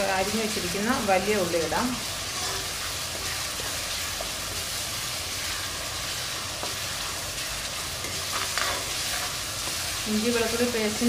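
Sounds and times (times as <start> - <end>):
paste sizzling in oil: 0.0 - 11.0.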